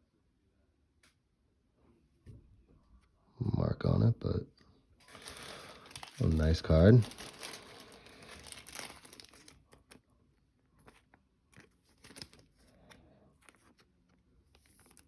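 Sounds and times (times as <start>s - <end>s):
foil wrapper crinkling and tearing: 5.0s - 10.0s, 10.8s - 15.0s.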